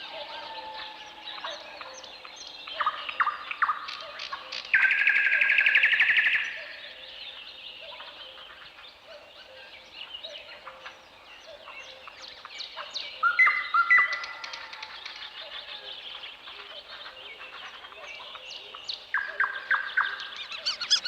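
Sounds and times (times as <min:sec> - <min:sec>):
birds chirping and calling: 0:00.0 - 0:21.0
bird trill: 0:19.2 - 0:21.0
loud whistled bird notes: 0:20.4 - 0:21.0.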